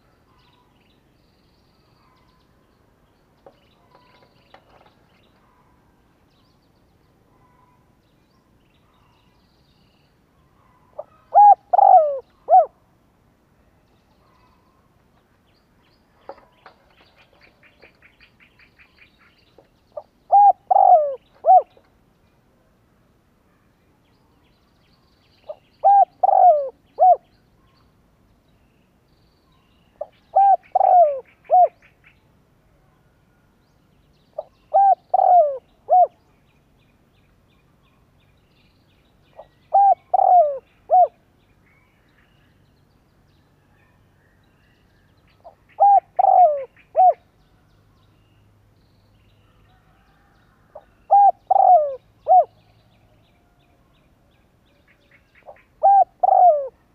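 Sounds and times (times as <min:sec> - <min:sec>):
dove cooing: 0:10.9 - 0:12.8, 0:20.0 - 0:21.8, 0:25.5 - 0:27.2, 0:30.0 - 0:31.8, 0:34.4 - 0:36.2, 0:39.4 - 0:41.2, 0:45.4 - 0:47.2, 0:50.2 - 0:52.5, 0:55.5 - 0:56.8.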